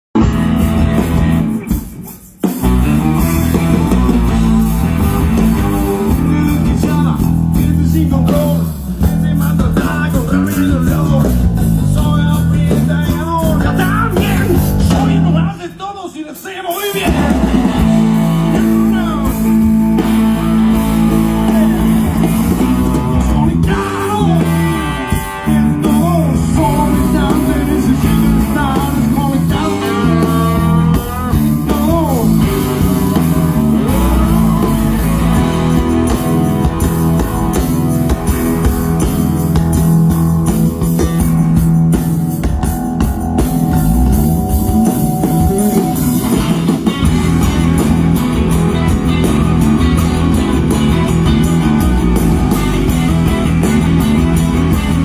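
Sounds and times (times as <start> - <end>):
rock band playing live: 0.1 - 55.0
person singing: 3.5 - 38.8.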